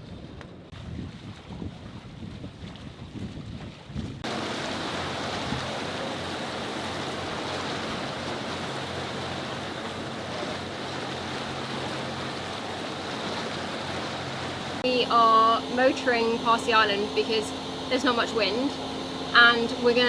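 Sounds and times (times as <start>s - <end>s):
wind on microphone: 0.0s - 8.7s
low engine hum: 4.2s - 20.0s
water rushing: 4.2s - 20.0s.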